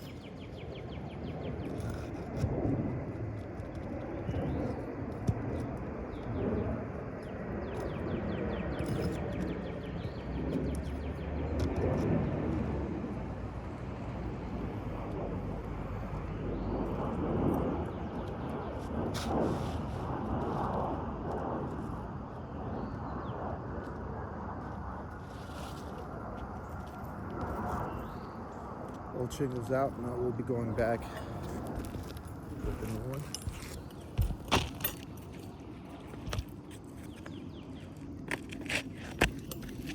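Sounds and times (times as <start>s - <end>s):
steady low rumble: 0.0s - 39.9s
roofing shingles scraping: 19.0s - 21.0s, 24.6s - 27.6s, 30.9s - 39.9s.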